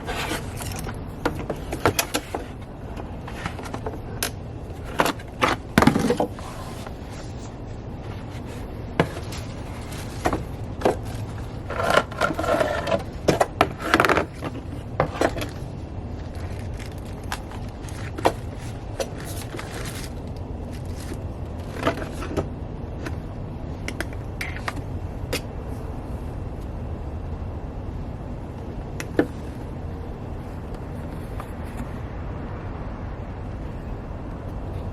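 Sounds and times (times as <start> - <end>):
items scraping and clicking: 0.0 - 23.2
low background hum: 0.0 - 34.9.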